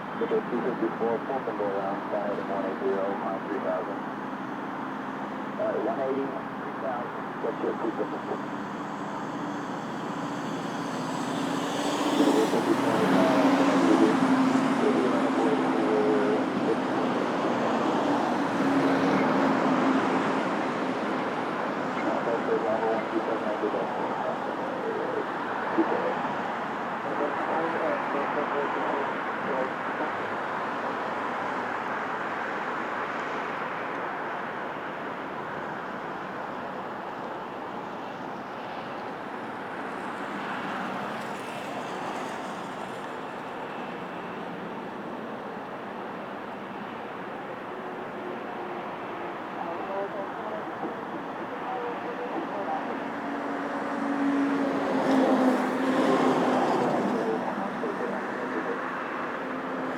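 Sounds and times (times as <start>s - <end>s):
faint high whine: 0.0s - 30.6s
jet engines roaring: 0.0s - 59.9s.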